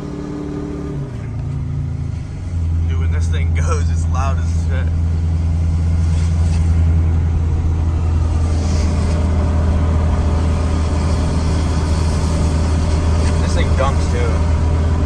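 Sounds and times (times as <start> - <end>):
diesel truck engine droning: 0.0 - 15.0.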